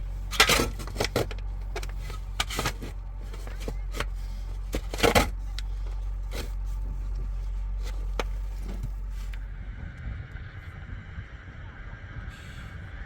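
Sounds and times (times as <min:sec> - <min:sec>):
knocks and clanks: 0:00.0 - 0:09.1
tractor engine droning: 0:00.0 - 0:13.0.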